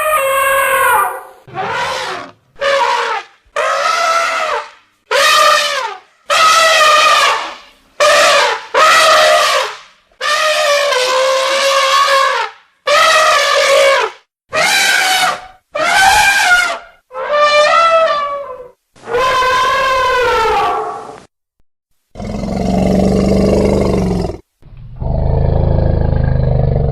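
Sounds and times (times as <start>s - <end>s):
elephants trumpeting: 0.0s - 21.1s.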